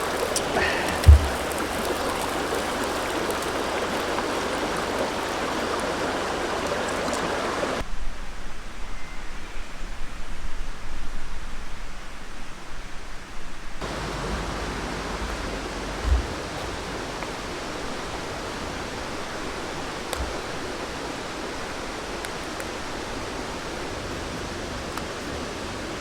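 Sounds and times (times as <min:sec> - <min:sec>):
river water rushing: 0:00.0 - 0:07.8, 0:13.8 - 0:26.0
low thump: 0:00.7 - 0:02.1, 0:13.8 - 0:17.4.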